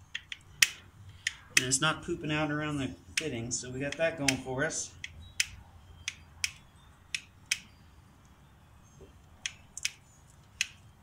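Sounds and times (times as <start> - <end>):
grease gun lever clicks: 5.0 - 7.7.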